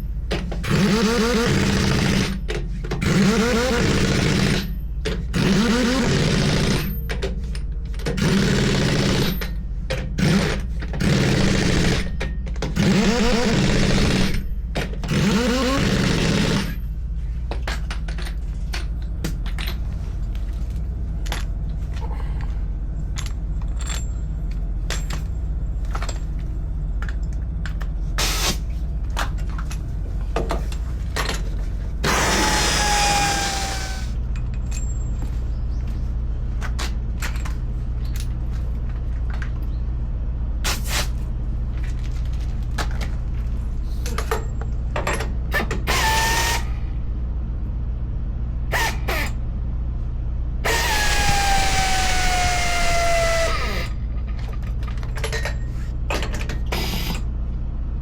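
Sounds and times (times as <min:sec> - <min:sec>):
pneumatic impact wrench bursts: 0:00.0 - 0:02.4, 0:03.0 - 0:07.0, 0:08.1 - 0:09.5, 0:10.2 - 0:16.8, 0:28.2 - 0:28.7, 0:32.0 - 0:34.2, 0:40.6 - 0:41.2, 0:45.5 - 0:46.8, 0:48.7 - 0:49.4, 0:50.6 - 0:54.0, 0:56.6 - 0:57.3
steady low hum: 0:00.0 - 0:58.0.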